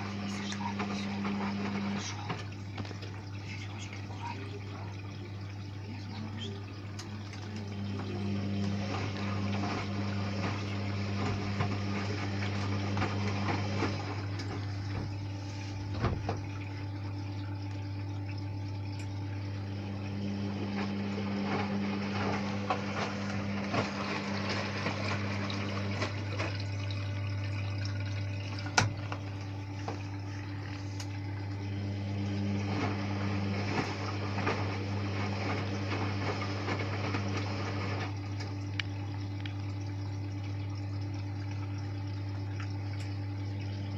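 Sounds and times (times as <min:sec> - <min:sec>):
washing machine low hum: 0:00.0 - 0:43.9
water sloshing in drum: 0:00.0 - 0:43.9.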